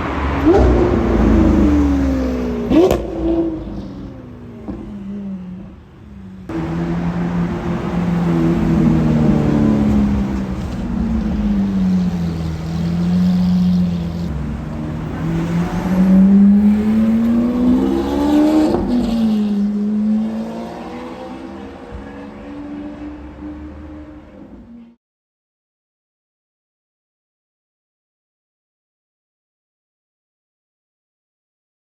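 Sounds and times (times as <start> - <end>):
loud car engine accelerating: 0.0 - 25.0.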